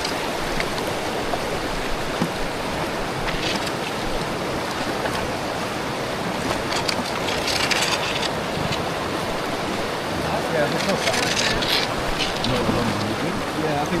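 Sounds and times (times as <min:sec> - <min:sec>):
river water rushing: 0:00.0 - 0:14.0
water splashing: 0:00.0 - 0:14.0.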